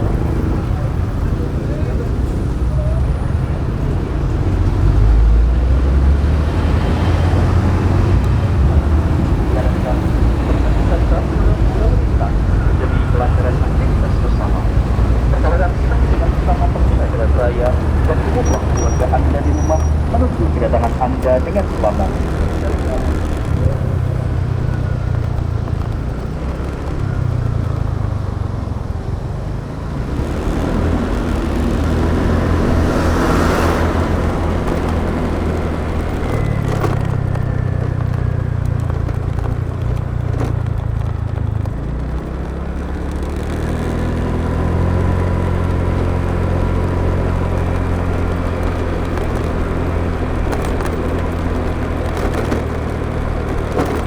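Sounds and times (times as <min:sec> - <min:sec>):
motorbike engine running: 0:00.0 - 0:54.0
road and wind noise: 0:00.0 - 0:54.0.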